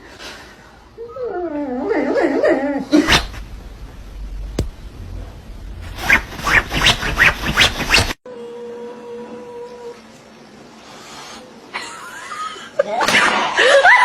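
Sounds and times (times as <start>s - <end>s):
sharp knocks: 4.5s - 4.9s.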